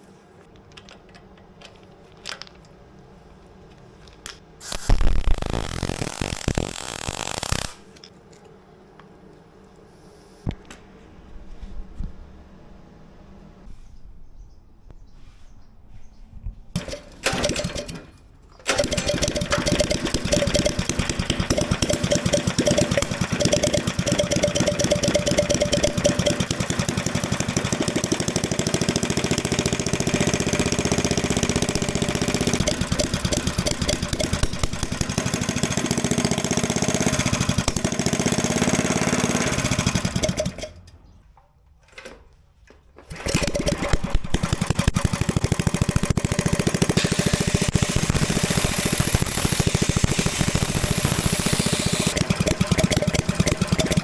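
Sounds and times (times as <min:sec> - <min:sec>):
mini bike engine running: 0:04.8 - 0:07.8, 0:18.7 - 0:40.8, 0:43.1 - 0:54.0.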